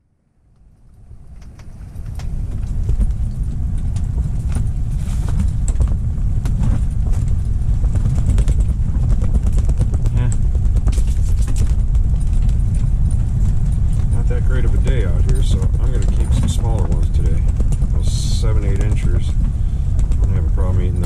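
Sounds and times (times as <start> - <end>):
wind buffeting microphone: 0.9 - 21.0
sharp clicks and taps: 14.0 - 21.0.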